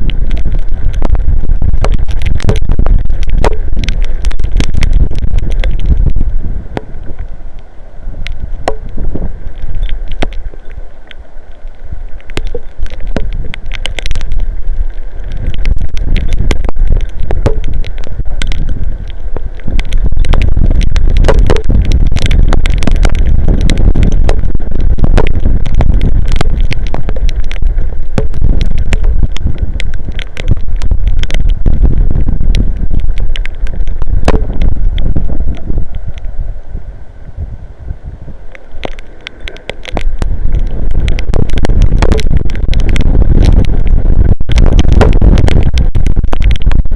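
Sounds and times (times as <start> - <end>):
wind buffeting microphone: 0.0 - 10.8, 11.8 - 46.9
heavy rain ticking on housing: 12.1 - 35.2.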